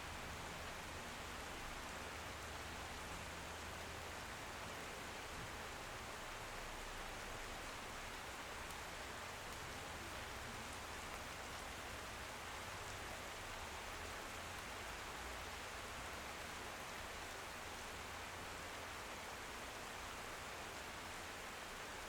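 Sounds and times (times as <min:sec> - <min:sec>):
rain against a window: 0:00.1 - 0:22.0.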